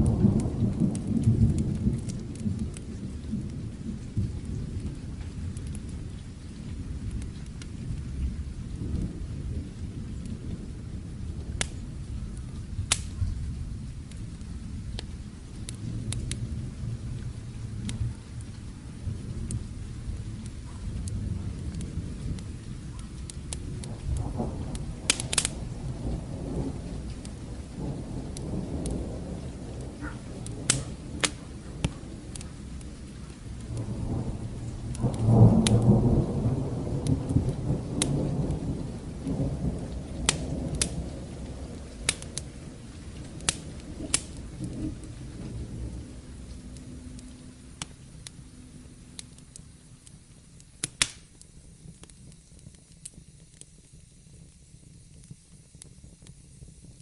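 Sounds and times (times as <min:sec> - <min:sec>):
distant thunder rolling: 0:00.0 - 0:51.1
steady rain: 0:00.0 - 0:57.0
wood fire crackling: 0:00.0 - 0:57.0.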